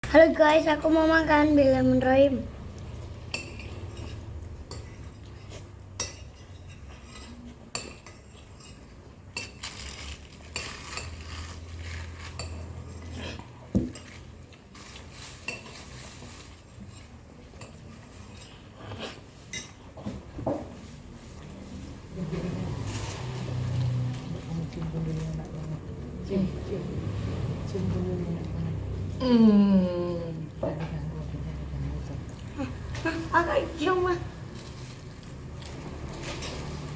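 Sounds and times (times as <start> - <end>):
cutlery clinking on a plate: 3.3 - 11.4.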